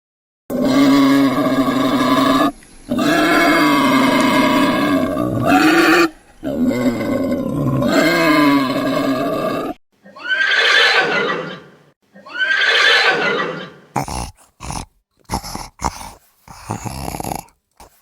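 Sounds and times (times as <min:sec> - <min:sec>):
wild animal calls: 0:00.5 - 0:18.0.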